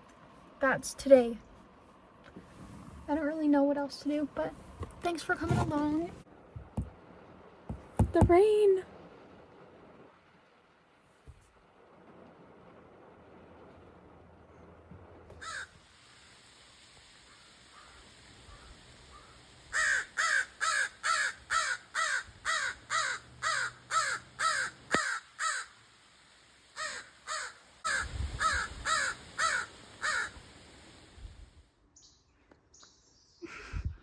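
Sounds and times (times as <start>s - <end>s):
crow cawing: 15.4s - 15.8s, 17.3s - 25.8s, 26.8s - 30.4s.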